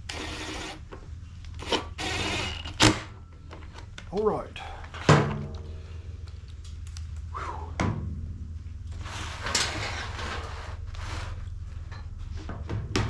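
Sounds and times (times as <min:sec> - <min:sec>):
low steady hum: 0:00.0 - 0:13.0
rustling and scraping of tools: 0:08.8 - 0:12.7.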